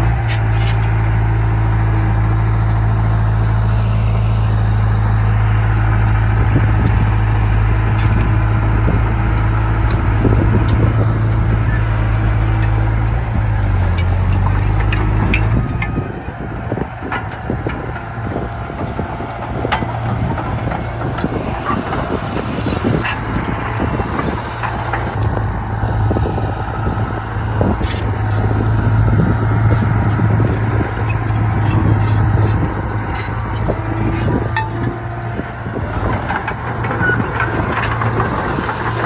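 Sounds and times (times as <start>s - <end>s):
heavy diesel machinery running: 0.0s - 39.0s
metallic clanks and rattles: 5.7s - 25.4s, 27.6s - 39.0s.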